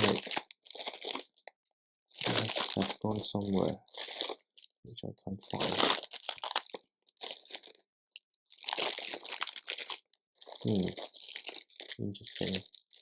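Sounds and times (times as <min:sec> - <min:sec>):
plastic pieces rattling: 0:00.0 - 0:01.3, 0:05.6 - 0:07.8, 0:08.5 - 0:13.0
plastic bags crinkling: 0:00.0 - 0:01.4, 0:02.1 - 0:04.8, 0:05.4 - 0:13.0.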